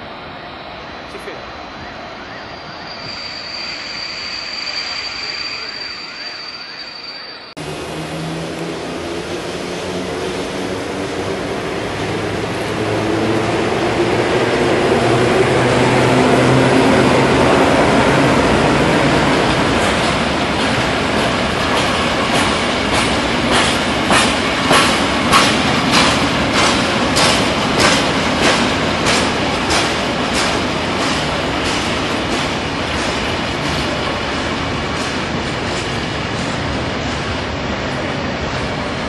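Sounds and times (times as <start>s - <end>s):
train wheels clacking over rail joints: 19.3s - 37.3s.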